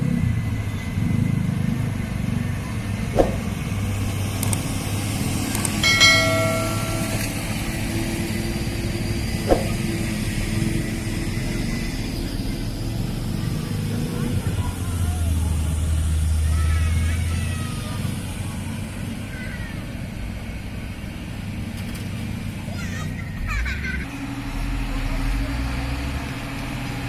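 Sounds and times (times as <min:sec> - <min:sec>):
truck engine rumbling: 0:00.0 - 0:27.0
sharp clicks: 0:04.4 - 0:04.6, 0:05.5 - 0:05.8
brief high-pitched tone: 0:05.8 - 0:07.6.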